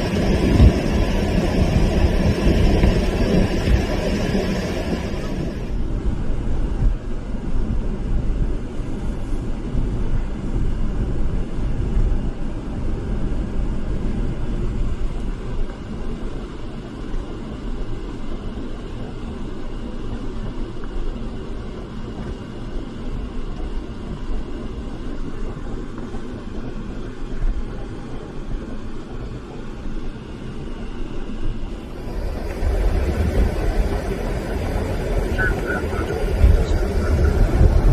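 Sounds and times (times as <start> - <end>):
car road rumble: 0.0 - 30.2, 31.0 - 37.9.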